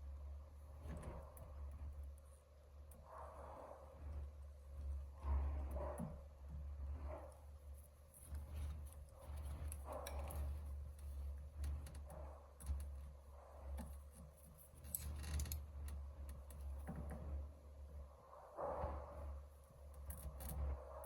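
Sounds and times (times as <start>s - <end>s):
steady low hum: 0.0s - 21.0s
light clicks and taps: 4.2s - 17.5s.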